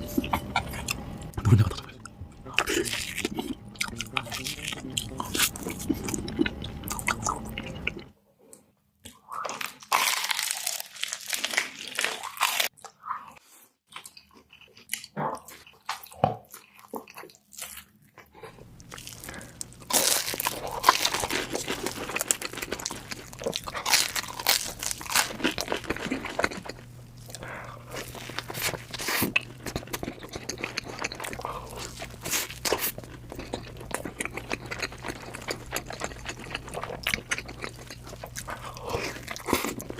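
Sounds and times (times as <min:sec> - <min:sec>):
wet chewing: 0:00.0 - 0:08.1, 0:14.0 - 0:39.9
biting and crunching food: 0:00.1 - 0:08.1, 0:09.1 - 0:13.0, 0:13.9 - 0:39.9.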